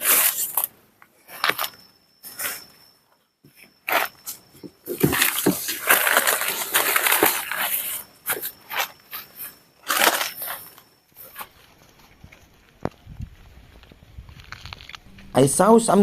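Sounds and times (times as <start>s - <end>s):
dry grass and leaves rustling: 3.9s - 16.0s.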